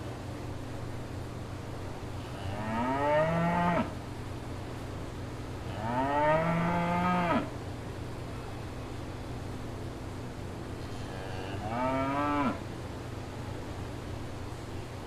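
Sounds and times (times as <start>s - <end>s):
steady low hum: 0.0s - 15.0s
cow mooing: 2.3s - 3.9s, 5.7s - 7.5s, 11.0s - 12.6s.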